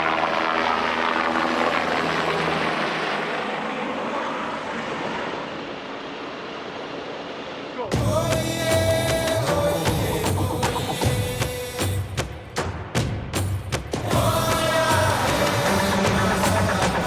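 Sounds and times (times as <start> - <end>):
helicopter in flight: 0.0 - 7.8.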